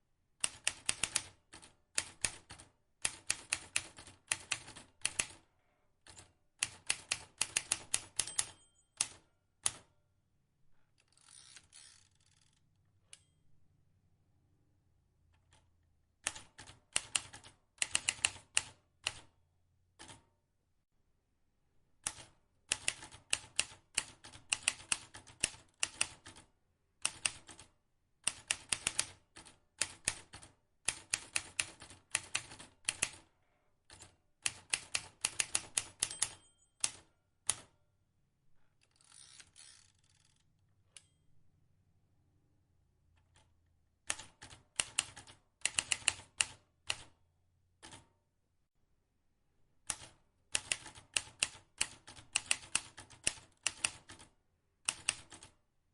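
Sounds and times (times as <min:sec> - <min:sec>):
typewriter keystroke clacks: 0:28.3 - 0:33.2, 0:33.9 - 0:37.7, 0:44.1 - 0:47.1, 0:49.9 - 0:54.3, 0:54.9 - 0:55.6.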